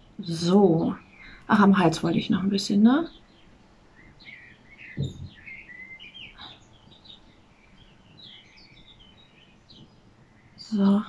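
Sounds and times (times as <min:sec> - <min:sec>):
small birds chirping: 0:00.0 - 0:11.0
soft low thump: 0:05.0 - 0:05.4.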